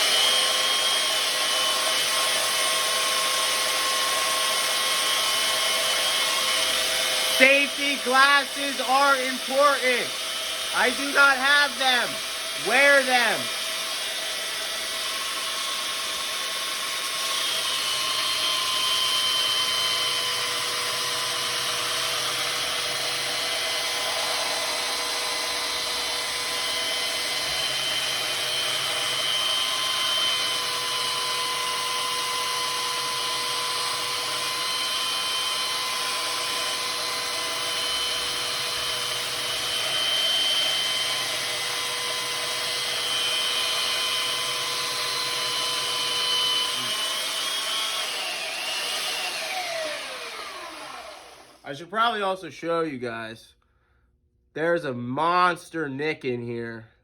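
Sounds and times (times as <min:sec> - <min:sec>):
belt sander running: 0:00.0 - 0:51.6
high whine of sharpening: 0:21.9 - 0:32.0.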